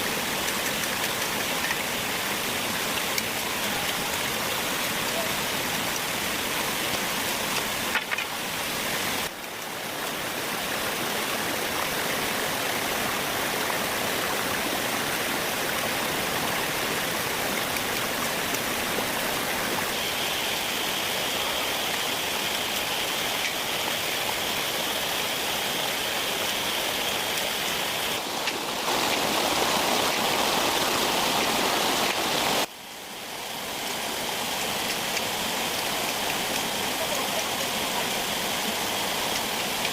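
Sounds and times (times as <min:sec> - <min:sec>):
hiss of running water or rain: 0:00.0 - 0:39.9.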